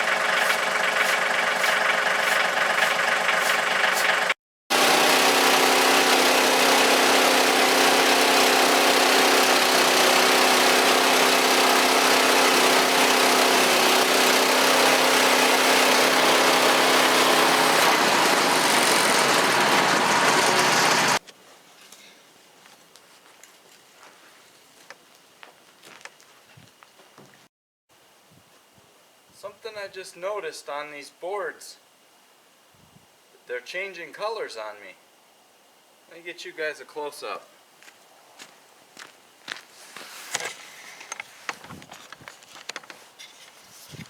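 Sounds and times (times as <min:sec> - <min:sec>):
gasoline engine running: 0:00.0 - 0:21.2.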